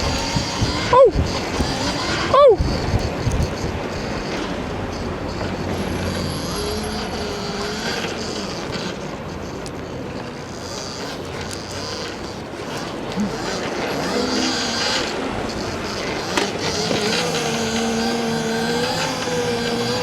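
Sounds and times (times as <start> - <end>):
wind rushing over microphone: 0.0 - 6.7
electric motor whine: 0.0 - 20.0
tyre and road noise: 0.0 - 20.0.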